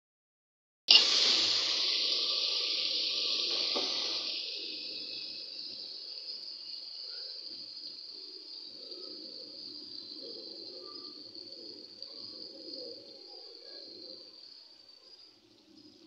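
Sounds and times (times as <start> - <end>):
chicken sizzling in a pan: 0.9 - 15.0.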